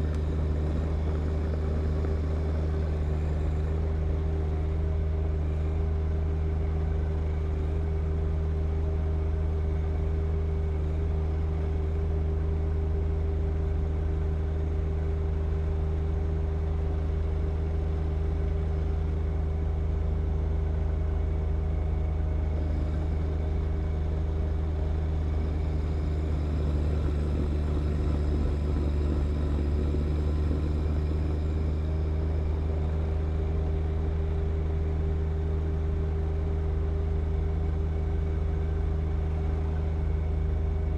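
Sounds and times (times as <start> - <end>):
tractor diesel engine running: 0.0 - 7.6, 16.5 - 40.9.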